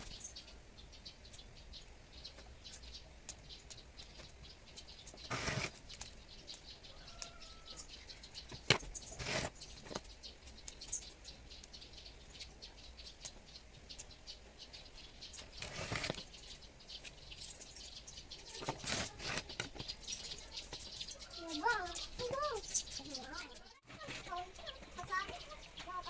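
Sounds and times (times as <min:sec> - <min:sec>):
rustling: 0:04.0 - 0:06.7, 0:07.7 - 0:11.4, 0:14.8 - 0:26.0.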